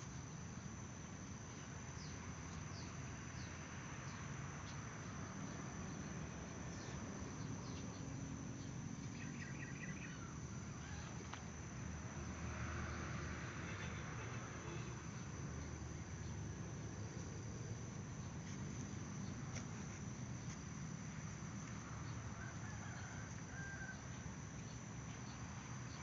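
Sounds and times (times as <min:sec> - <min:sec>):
insects trilling: 0:00.0 - 0:26.0.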